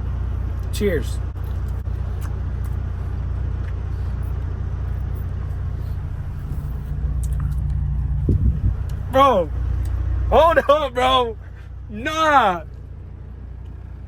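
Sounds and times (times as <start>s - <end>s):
truck diesel engine idling: 0.0s - 14.0s.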